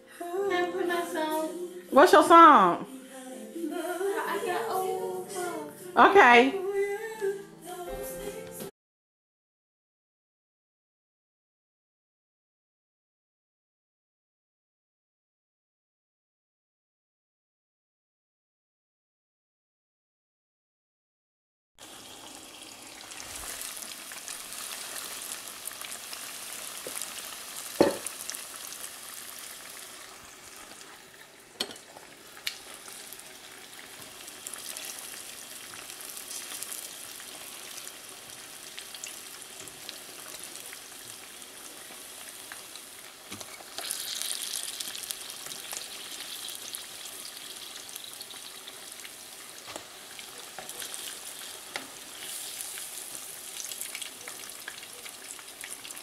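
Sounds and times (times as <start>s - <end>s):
hot oil sizzling: 21.8s - 56.0s.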